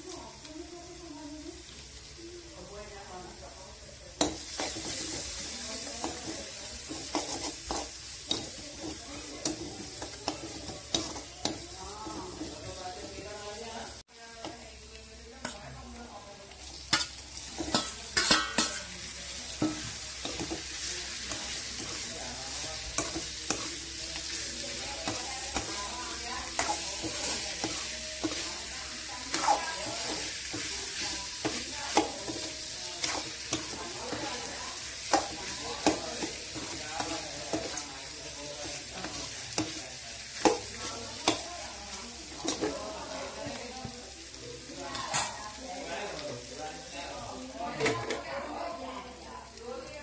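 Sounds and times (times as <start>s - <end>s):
paste sizzling in hot oil: 0.0s - 50.0s
metal spoon scraping a pan: 4.2s - 13.4s, 16.6s - 43.6s, 44.8s - 45.6s.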